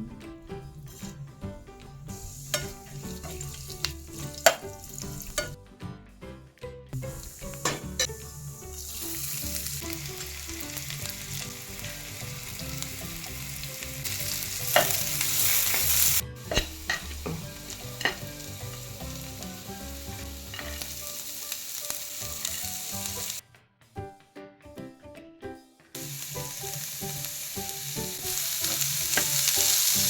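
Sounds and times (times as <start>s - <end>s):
food sizzling in oil: 0.8s - 1.2s, 2.0s - 5.6s, 7.0s - 23.4s, 26.0s - 30.0s.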